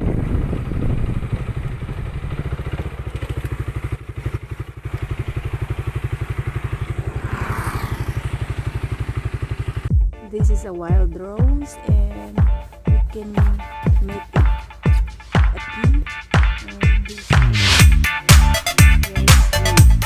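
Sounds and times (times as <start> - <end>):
small engine chugging: 0.0 - 9.9.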